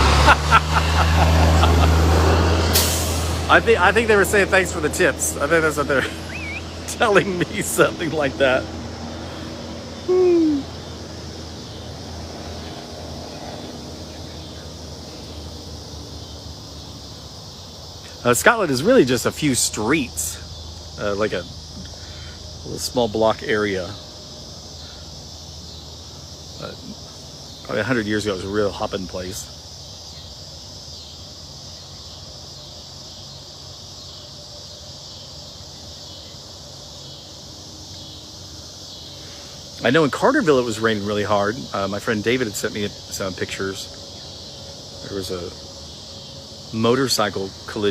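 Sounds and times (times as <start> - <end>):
insects trilling: 0.0 - 47.9
road and engine noise: 0.0 - 47.9
short falling vocal sound: 10.1 - 10.7.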